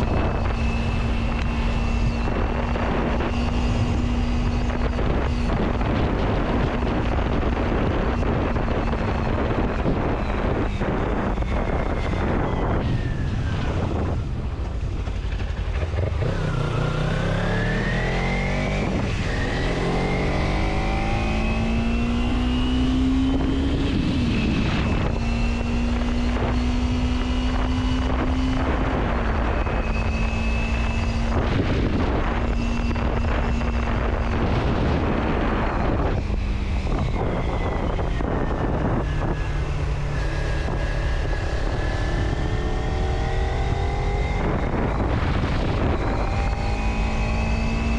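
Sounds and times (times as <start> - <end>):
steady rushing noise: 0.0 - 47.9
vehicle engine accelerating: 0.0 - 47.9.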